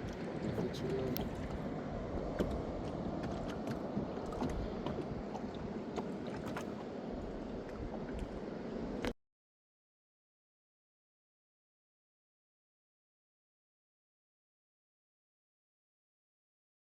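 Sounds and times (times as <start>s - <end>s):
water washing against boat: 0.0s - 9.1s.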